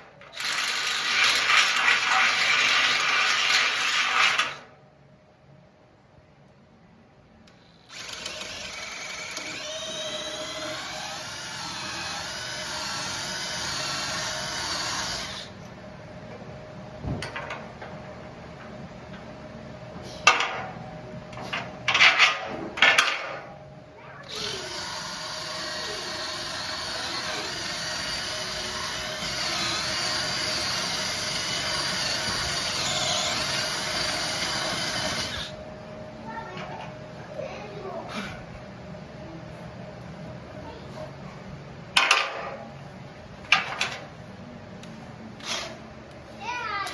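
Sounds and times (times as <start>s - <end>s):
electric drill boring into metal: 0.3s - 4.6s, 7.7s - 15.6s, 24.3s - 35.6s.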